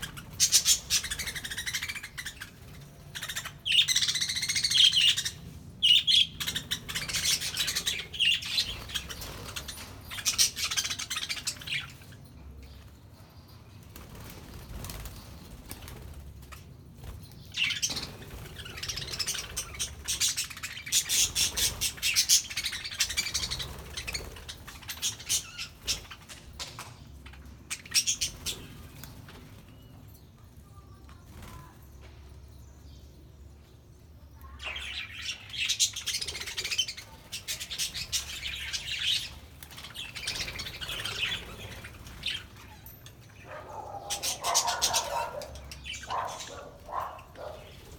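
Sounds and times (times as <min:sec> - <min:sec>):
budgerigars chirping and chattering: 0:00.0 - 0:12.2, 0:17.4 - 0:29.3, 0:34.4 - 0:47.9.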